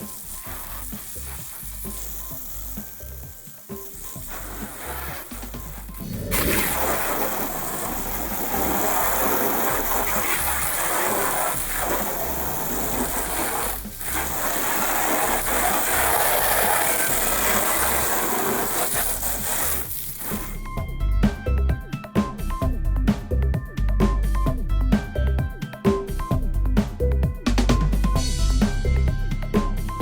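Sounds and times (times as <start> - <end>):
cleaning tool rushing hiss: 0.0 - 20.6.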